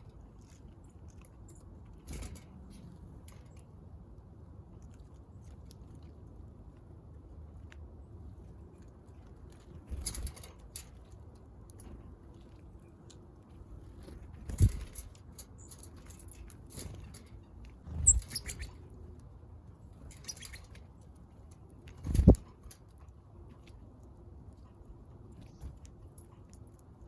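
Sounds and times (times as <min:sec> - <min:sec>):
high bird chirp: 0:17.9 - 0:18.8
birds flapping wings: 0:22.0 - 0:22.4.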